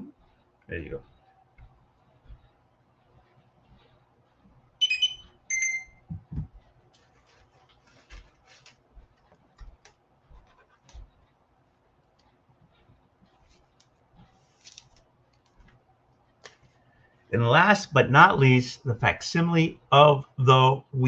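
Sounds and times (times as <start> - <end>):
soft thumps: 6.0 - 6.7
comic books rustling and clicking: 6.9 - 11.2, 13.3 - 15.8.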